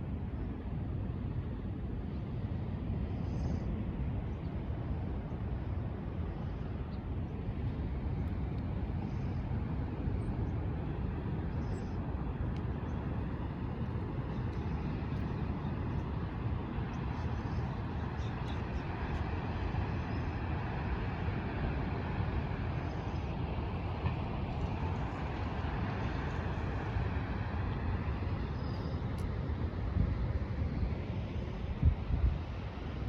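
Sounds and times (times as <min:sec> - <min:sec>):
ocean surf: 0:07.4 - 0:33.0.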